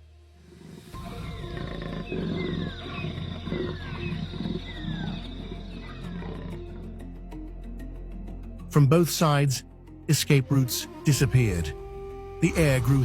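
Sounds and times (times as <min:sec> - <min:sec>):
big cat growling: 0:00.5 - 0:07.0.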